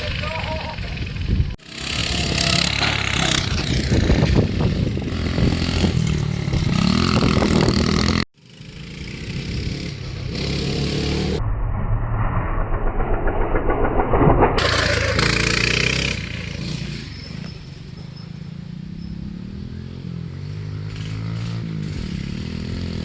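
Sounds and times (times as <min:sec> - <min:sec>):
mini bike engine revving: 0:01.6 - 0:11.4, 0:14.6 - 0:23.0.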